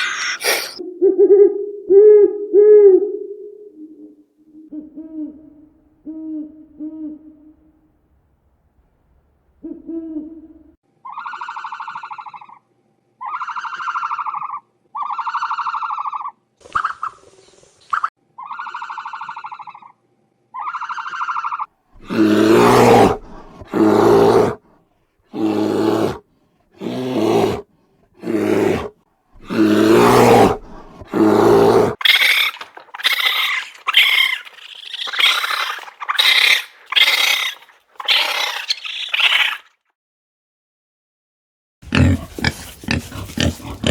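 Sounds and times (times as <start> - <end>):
harsh roaring calls: 0.0 - 0.8, 22.0 - 24.6, 25.3 - 26.2, 28.2 - 39.7, 41.8 - 43.9
high-pitched animal cries: 0.0 - 0.8, 11.0 - 12.6, 13.2 - 16.3, 18.4 - 19.9, 20.6 - 21.7, 32.0 - 39.7
tonal animal calls: 0.0 - 7.8, 9.6 - 12.6, 18.4 - 20.0, 28.2 - 39.7, 41.9 - 43.9.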